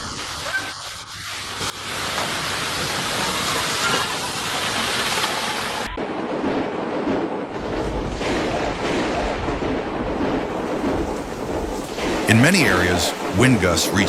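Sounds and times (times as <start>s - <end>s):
wind and rain hissing: 0.0s - 14.0s
deep rumbling wind: 5.9s - 13.4s.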